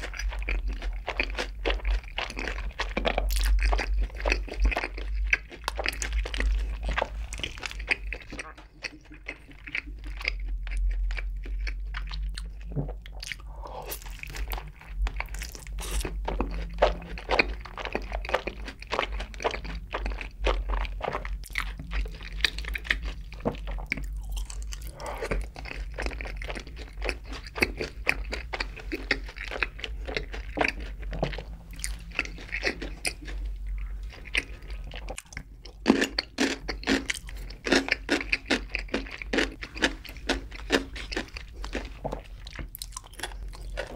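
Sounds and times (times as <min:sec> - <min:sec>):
crunching and wet chewing: 0:00.0 - 0:43.9.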